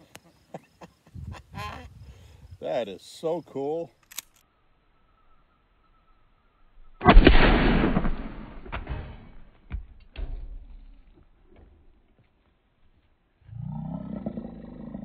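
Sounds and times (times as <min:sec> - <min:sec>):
shotgun blast echoing: 0:07.0 - 0:09.4.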